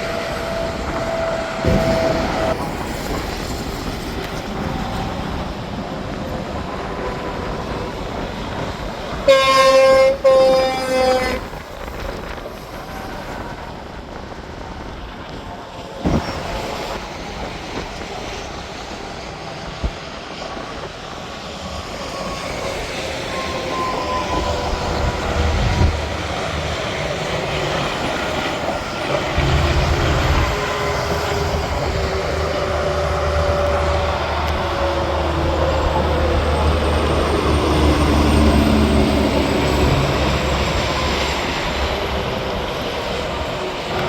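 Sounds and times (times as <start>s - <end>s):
highway traffic passing: 22.4s - 44.0s.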